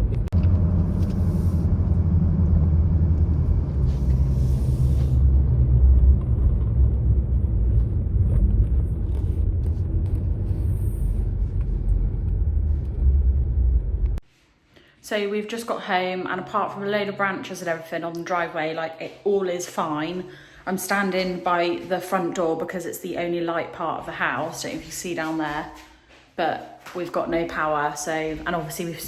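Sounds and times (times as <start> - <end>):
car cabin road rumble: 0.0 - 14.2.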